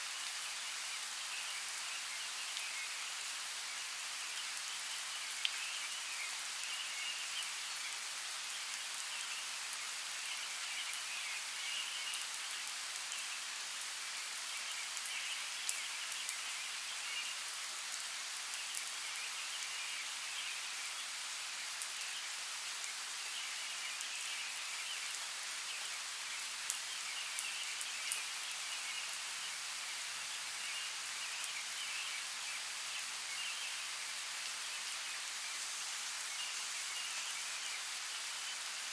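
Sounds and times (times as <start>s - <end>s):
rainfall hissing: 0.0s - 38.9s.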